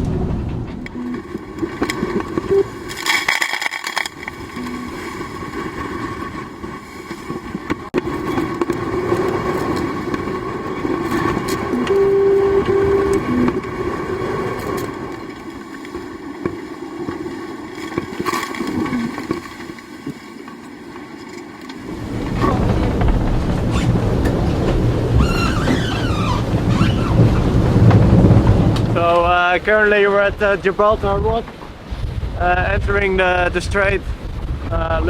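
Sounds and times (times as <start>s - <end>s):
constant hum: 0.0s - 29.7s
rushing water: 0.0s - 31.9s
wind: 0.0s - 35.0s
short electronic beeps: 0.9s - 1.4s, 2.4s - 2.8s, 4.6s - 5.1s, 11.7s - 13.6s.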